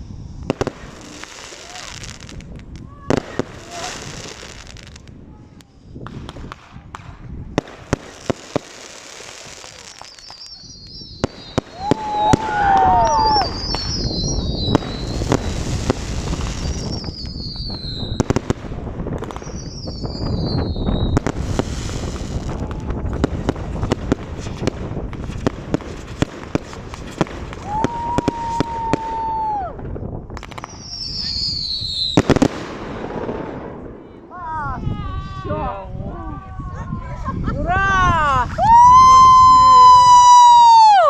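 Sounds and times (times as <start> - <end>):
fireworks bangs and crackles: 0.0 - 35.4, 38.2 - 41.0
fireworks shells whistling: 9.7 - 18.4, 19.3 - 22.5, 30.4 - 32.5.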